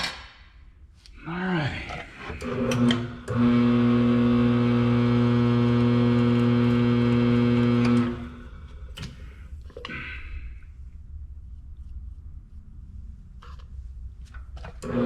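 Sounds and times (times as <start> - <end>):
drill press motor humming: 2.2 - 8.8.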